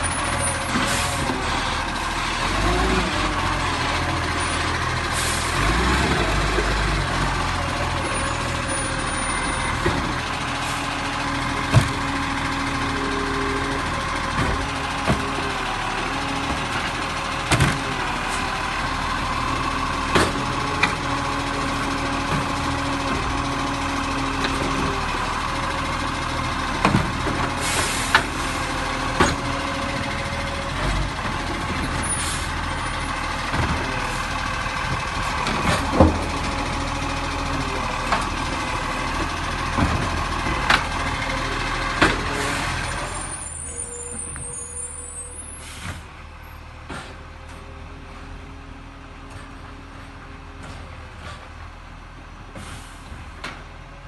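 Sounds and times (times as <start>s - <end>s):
garbage truck engine running: 0.0s - 54.0s
clunks and knocks: 6.0s - 10.4s, 11.4s - 12.2s, 14.2s - 15.4s, 16.3s - 18.4s, 20.0s - 21.1s, 22.2s - 23.5s, 26.7s - 30.1s, 33.4s - 34.2s, 34.8s - 36.9s, 38.0s - 42.4s, 46.8s - 48.2s, 49.2s - 51.7s.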